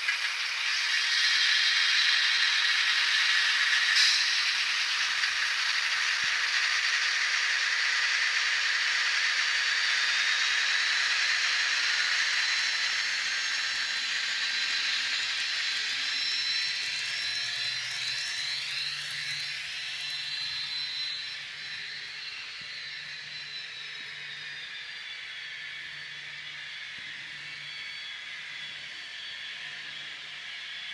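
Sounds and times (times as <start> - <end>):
model train diesel engine sound: 0.0 - 30.9.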